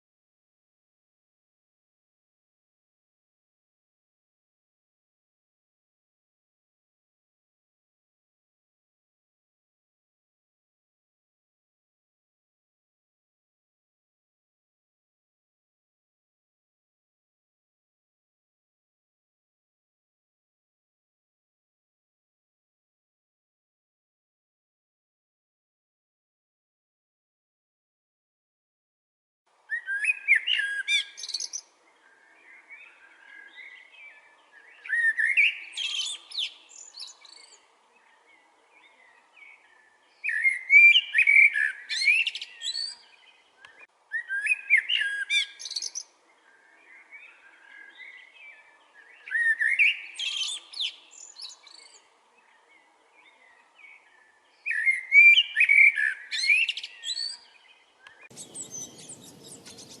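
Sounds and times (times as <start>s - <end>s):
small birds twittering: 29.7s - 60.0s.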